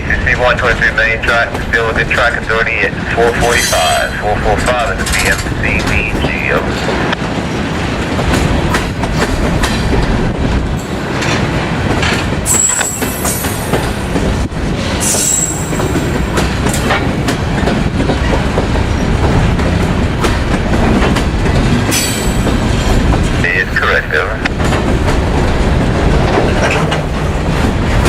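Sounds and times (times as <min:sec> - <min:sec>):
freight train cars rolling: 0:00.0 - 0:28.0
wheels clacking over rail joints: 0:03.5 - 0:23.4, 0:24.4 - 0:28.0.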